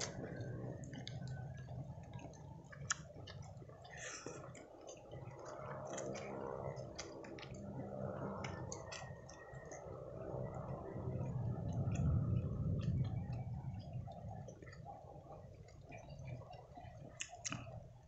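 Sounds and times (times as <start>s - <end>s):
chewing and mouth clicks: 0.0s - 18.0s
low steady background hum: 0.0s - 18.0s.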